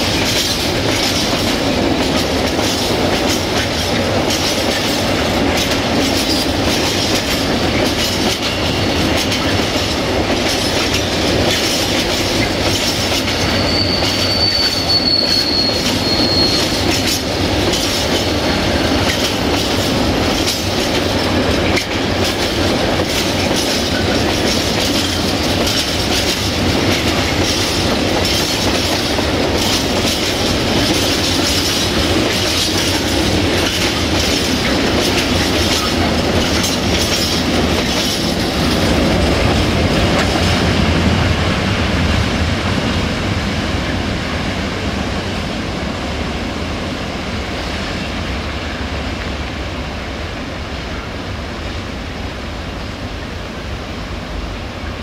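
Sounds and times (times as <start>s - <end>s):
wheels clicking over rail joints: 0.0s - 14.2s, 16.6s - 41.0s.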